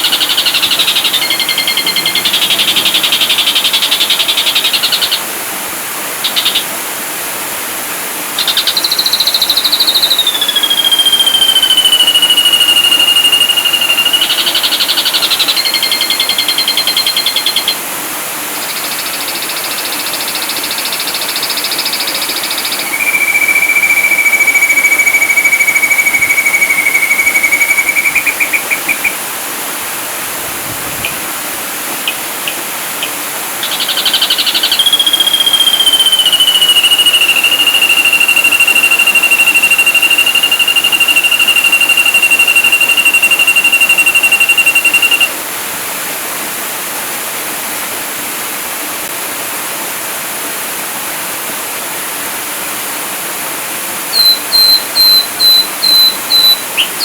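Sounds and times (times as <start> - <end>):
bird singing whistles and trills: 0.0 - 5.2, 6.2 - 6.7, 8.4 - 17.8, 18.6 - 29.2, 32.1 - 45.3, 54.1 - 57.0
steady hiss: 0.0 - 57.0.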